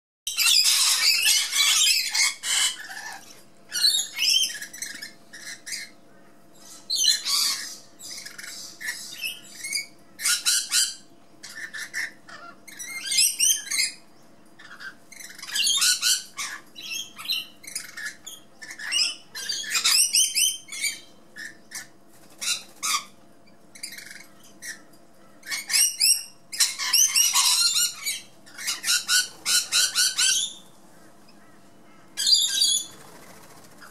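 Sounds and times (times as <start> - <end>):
parrot squawking and screeching: 0.3 - 6.0, 6.6 - 14.0, 14.6 - 30.7, 32.2 - 33.1.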